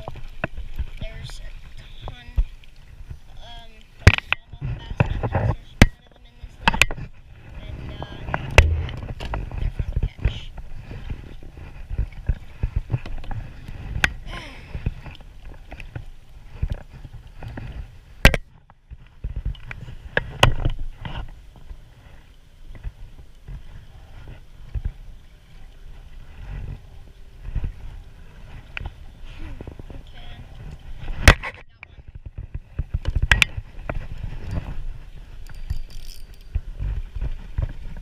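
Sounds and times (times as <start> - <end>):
knocks and clunks on a kayak: 0.0 - 38.0
low rumble: 4.5 - 14.8.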